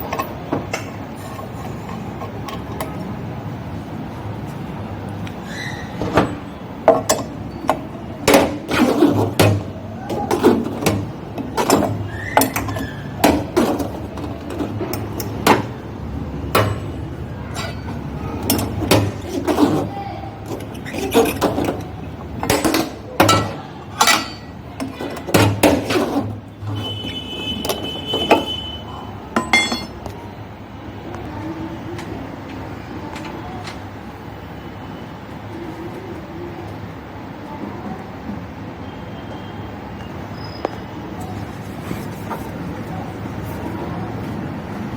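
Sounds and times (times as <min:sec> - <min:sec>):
high squeal: 0:05.4 - 0:06.4
metal clanks of hand tools: 0:17.5 - 0:26.4, 0:29.4 - 0:30.2.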